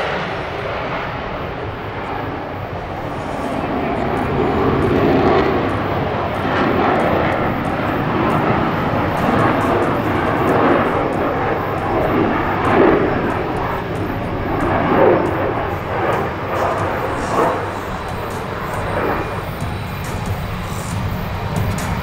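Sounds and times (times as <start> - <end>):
jet fighter flying: 0.0 - 22.0.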